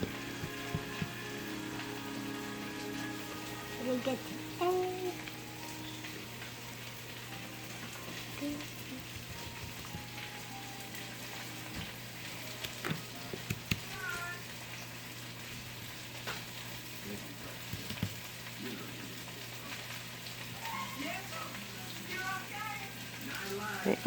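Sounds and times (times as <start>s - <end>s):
meat frying in hot oil: 0.0s - 24.0s
utensil clicks on pan: 12.6s - 13.9s.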